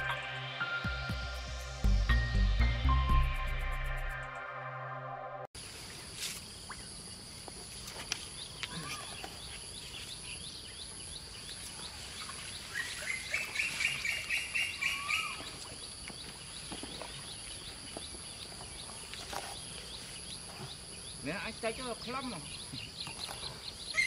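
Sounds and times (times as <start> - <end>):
birds chirping: 8.1 - 24.0.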